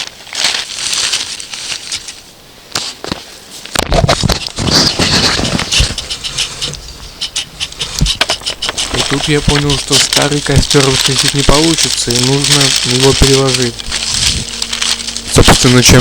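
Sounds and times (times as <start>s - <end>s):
twigs and paper rustling: 0.0s - 16.0s
low rumble: 5.5s - 16.0s.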